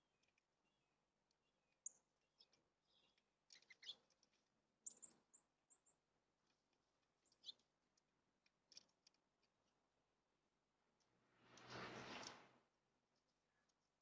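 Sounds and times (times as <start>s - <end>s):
small bird chirping: 0.0s - 6.1s, 7.2s - 7.8s.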